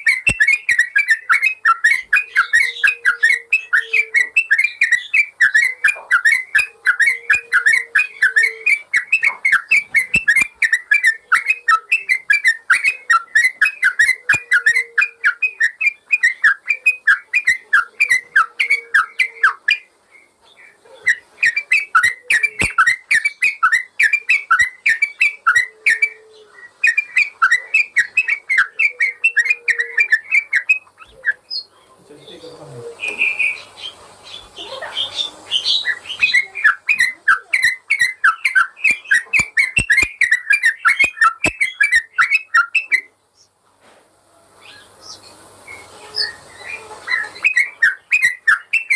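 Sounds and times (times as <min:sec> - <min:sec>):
bird singing bubbling whistles: 0:00.0 - 0:19.6, 0:35.6 - 0:43.1.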